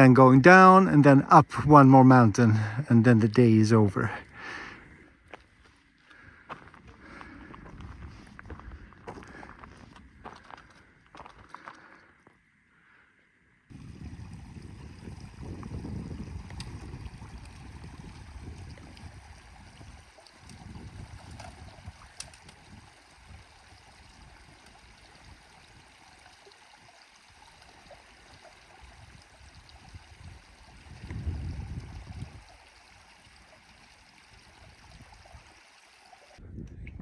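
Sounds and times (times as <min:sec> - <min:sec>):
wind gusting against microphone: 0:13.7 - 0:26.0, 0:28.6 - 0:32.9, 0:36.4 - 0:37.0.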